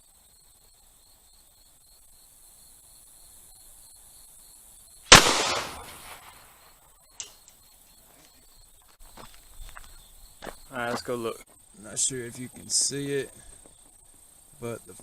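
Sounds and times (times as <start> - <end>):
shotgun blast: 5.1 - 6.5.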